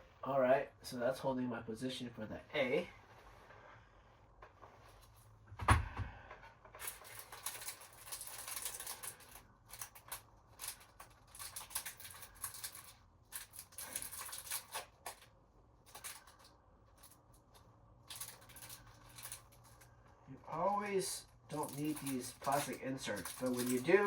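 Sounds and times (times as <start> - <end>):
rummaging and rustling: 6.8 - 15.2, 21.5 - 24.0.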